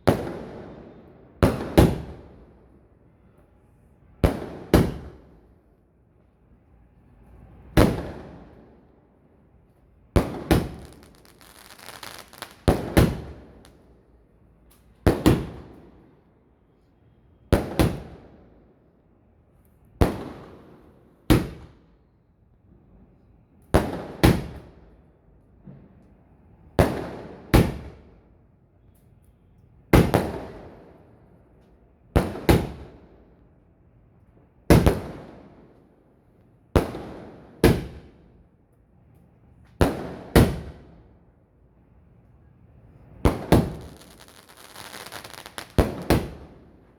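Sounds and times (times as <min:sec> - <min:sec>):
fireworks bangs: 0:10.2 - 0:13.6, 0:43.2 - 0:46.7
fireworks crackle: 0:10.6 - 0:13.2, 0:43.6 - 0:46.4.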